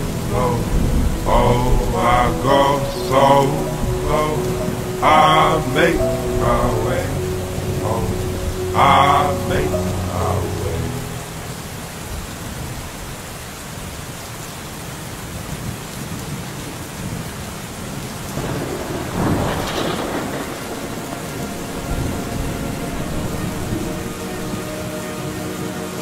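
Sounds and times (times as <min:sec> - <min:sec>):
thunder rolling: 0:00.0 - 0:09.7, 0:18.4 - 0:24.6
steady rain falling: 0:00.0 - 0:26.0.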